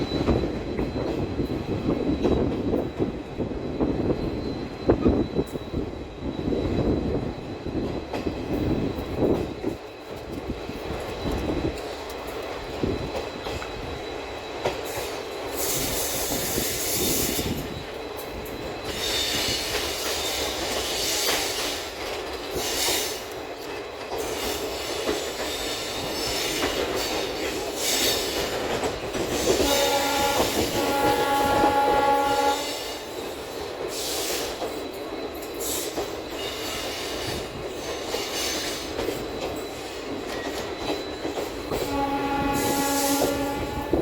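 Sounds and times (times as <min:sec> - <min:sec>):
train running on rails: 0:00.0 - 0:44.0
train wheels squealing: 0:00.0 - 0:44.0
locomotive horn: 0:29.6 - 0:33.0, 0:41.8 - 0:44.0.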